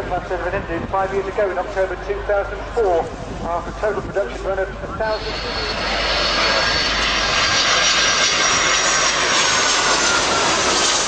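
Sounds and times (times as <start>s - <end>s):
jet engine roar with whine: 0.0s - 11.0s.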